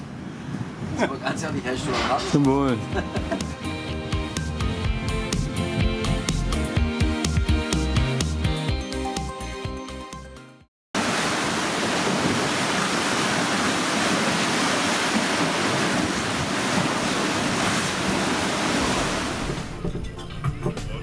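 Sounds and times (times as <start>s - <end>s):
sea water rushing: 11.0s - 19.8s
wind rushing: 11.0s - 19.8s.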